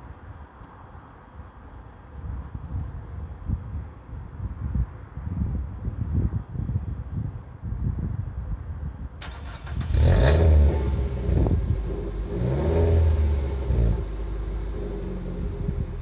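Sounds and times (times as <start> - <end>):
car engine starting and idling: 9.2 - 16.0
exhaust burble: 9.2 - 16.0.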